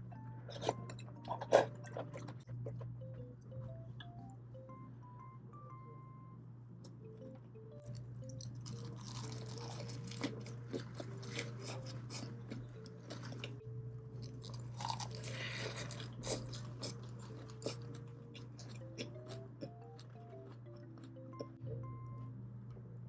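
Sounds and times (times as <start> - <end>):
person chewing crunchy food: 0.5 - 2.9, 7.9 - 21.6.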